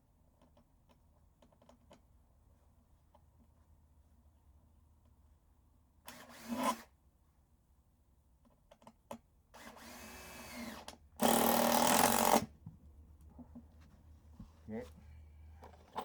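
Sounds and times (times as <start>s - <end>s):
power drill driving screws: 6.1s - 6.9s, 9.6s - 12.5s.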